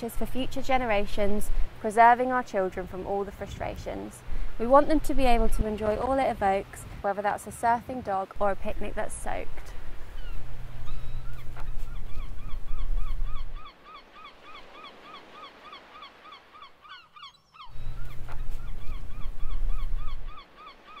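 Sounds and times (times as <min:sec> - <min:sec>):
bird calling: 0:09.7 - 0:21.0.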